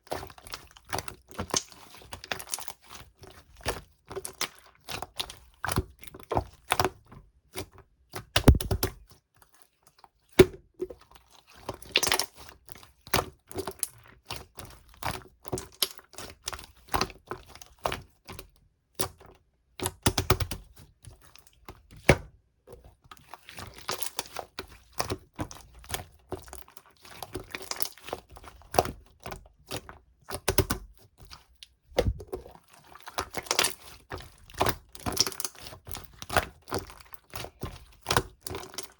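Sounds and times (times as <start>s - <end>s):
slime squished by hand: 8.4s - 9.0s, 29.7s - 38.9s.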